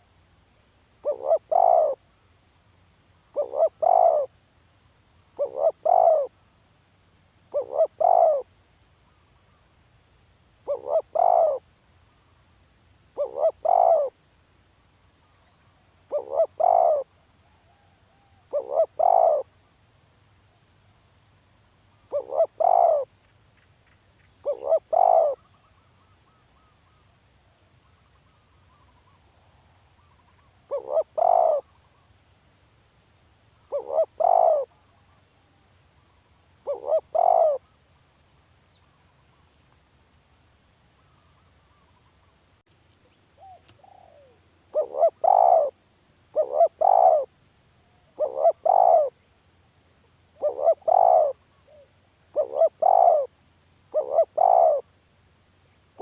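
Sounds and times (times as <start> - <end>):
dove cooing: 1.0 - 2.1, 3.3 - 4.3, 5.4 - 6.3, 7.5 - 8.5, 10.6 - 11.6, 13.1 - 14.2, 16.1 - 19.5, 22.1 - 23.1, 24.4 - 26.7, 30.0 - 32.0, 33.6 - 35.2, 36.6 - 37.7, 43.4 - 47.3, 47.9 - 49.2, 50.4 - 54.9.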